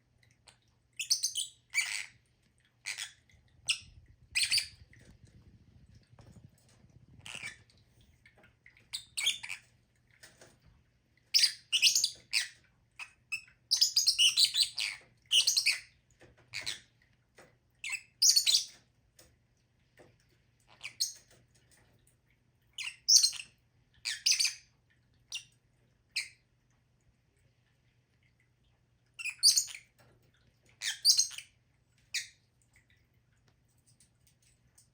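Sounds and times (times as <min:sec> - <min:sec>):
lovebirds chirping: 0:02.8 - 0:05.0.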